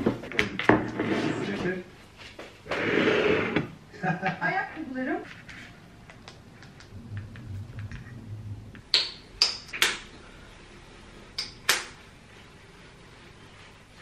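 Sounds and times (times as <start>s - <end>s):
low hum: 5.9s - 11.3s.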